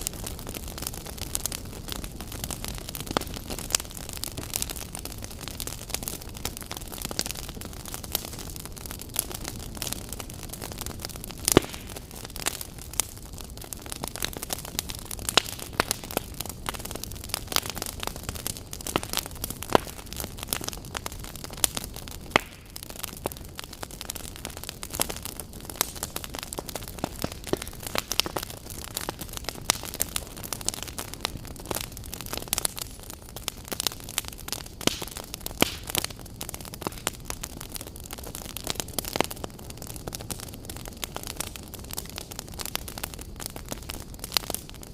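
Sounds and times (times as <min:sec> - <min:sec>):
fire low hiss: 0:00.0 - 0:44.9
wood fire crackling and popping: 0:00.0 - 0:44.9.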